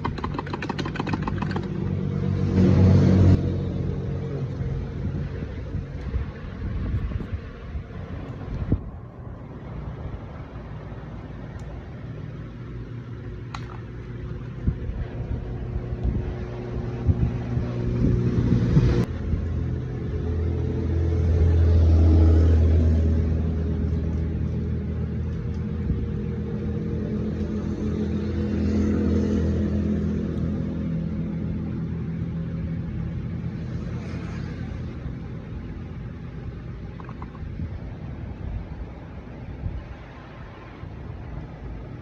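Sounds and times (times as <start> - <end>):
motorcycle engine revving and idling: 0.0 - 8.8, 12.7 - 36.2.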